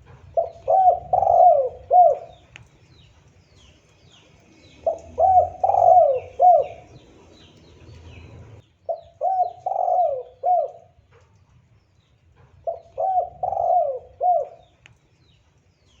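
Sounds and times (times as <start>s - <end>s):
small birds chirping: 0.0s - 16.0s
dove cooing: 0.2s - 2.6s, 4.5s - 11.0s, 12.7s - 14.8s.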